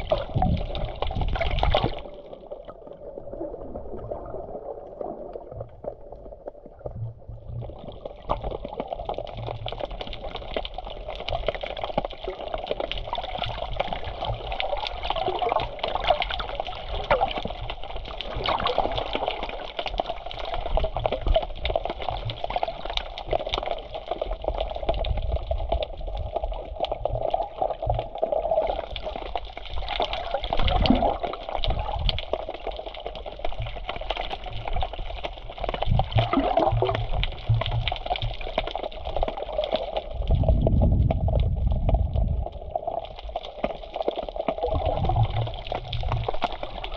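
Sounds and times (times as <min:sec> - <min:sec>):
wind on microphone: 0:40.3 - 0:42.5.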